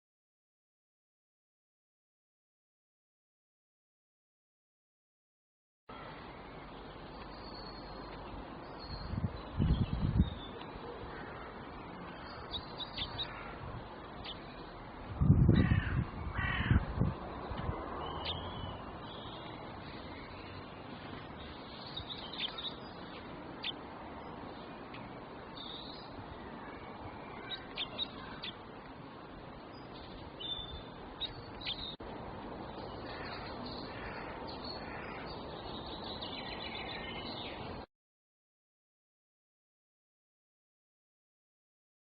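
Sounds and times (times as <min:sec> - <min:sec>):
birds chirping: 0:05.9 - 0:37.9
steady background hiss: 0:05.9 - 0:37.9
harsh bird calls: 0:08.7 - 0:13.6, 0:15.4 - 0:28.7, 0:32.8 - 0:37.8.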